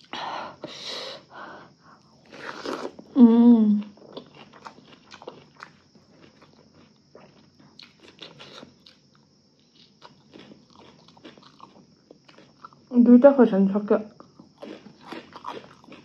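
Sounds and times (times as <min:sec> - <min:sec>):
person chewing with mouth smacks: 0:03.8 - 0:12.8, 0:14.2 - 0:16.0.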